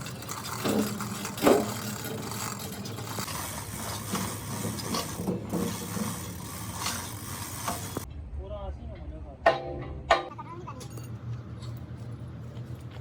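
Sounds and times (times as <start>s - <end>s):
scraping and rubbing: 0.0s - 8.1s.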